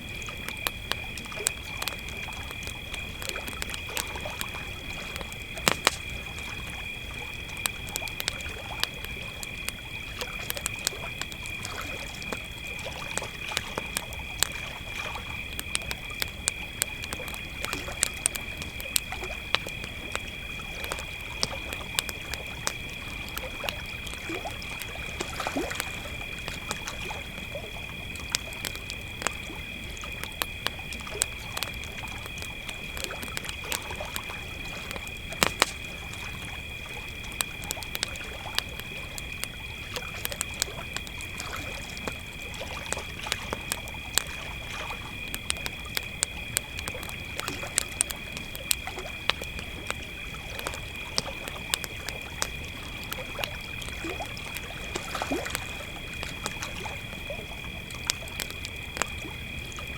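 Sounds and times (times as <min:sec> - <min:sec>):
campfire crackling and popping: 0:00.0 - 0:59.9
crickets trilling: 0:00.0 - 0:59.9.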